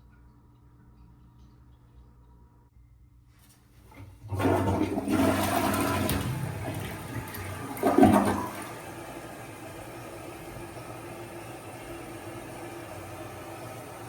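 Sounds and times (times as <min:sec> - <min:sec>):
toilet flushing: 0:03.9 - 0:14.0.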